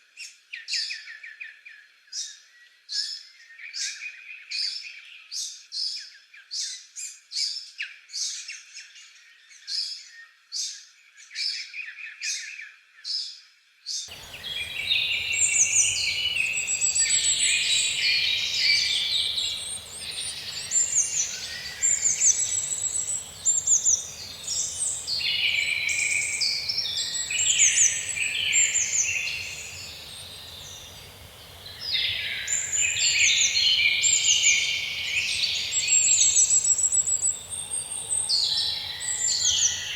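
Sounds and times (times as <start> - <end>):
chorus of many birds calling: 14.1 - 39.9.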